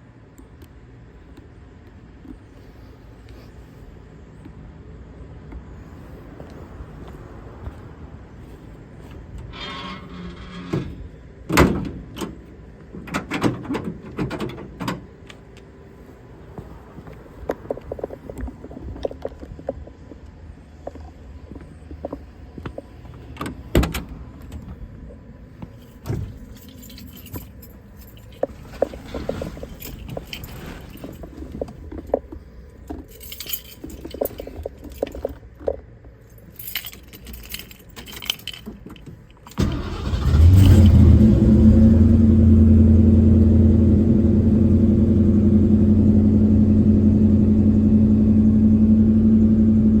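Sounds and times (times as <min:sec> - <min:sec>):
light clicks and rattles: 0:20.8 - 0:39.6
car engine starting and idling: 0:39.4 - 0:50.0.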